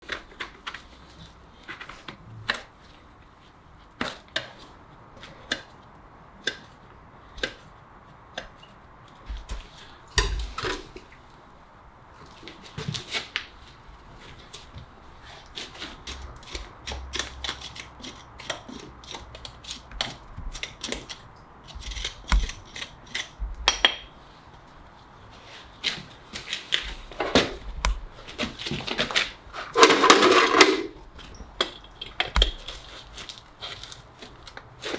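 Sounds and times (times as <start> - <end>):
farrier tools clicking on hoof: 16.0 - 24.1, 27.8 - 34.7
hoof scraping strokes: 28.4 - 31.3.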